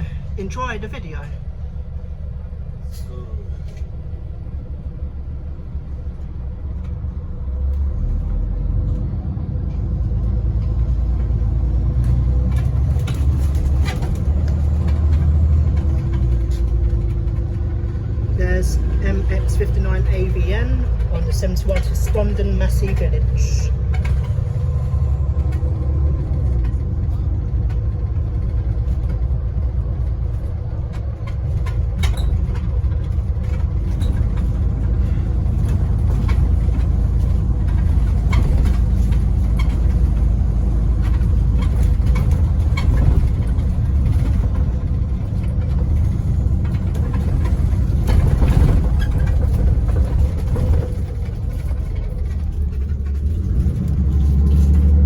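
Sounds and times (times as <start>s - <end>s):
bus engine and road rumble: 0.0s - 55.0s
bus body knocks and rattles: 8.9s - 55.0s.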